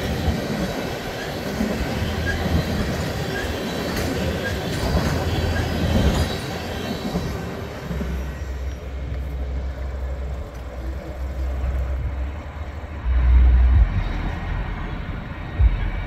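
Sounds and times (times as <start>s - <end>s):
freight train rolling away: 0.0s - 16.0s
low rumble: 8.4s - 16.0s.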